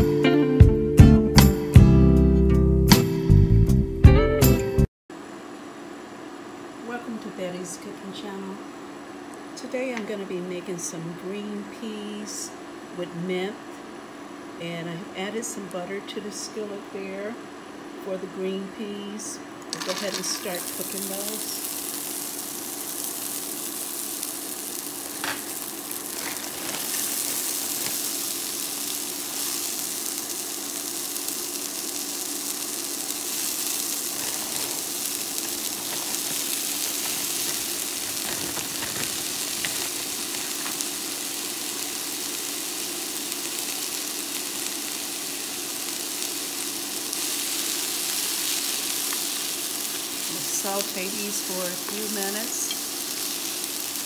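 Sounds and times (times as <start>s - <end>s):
peas sizzling in butter: 19.6s - 54.0s
wooden spoon stirring: 34.1s - 40.8s.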